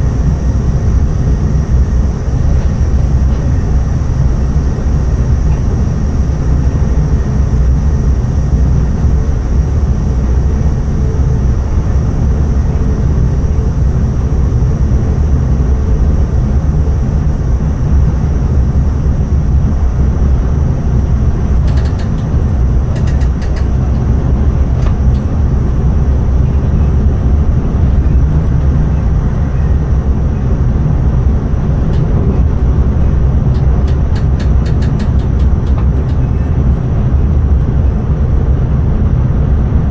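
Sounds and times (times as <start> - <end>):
train rumbling on rails: 0.0 - 39.9
faint clicks: 21.6 - 22.3.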